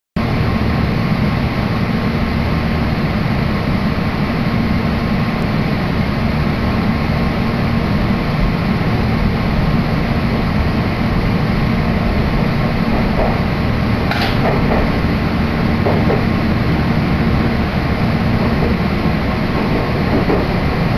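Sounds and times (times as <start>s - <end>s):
train interior rumble: 0.2s - 20.9s.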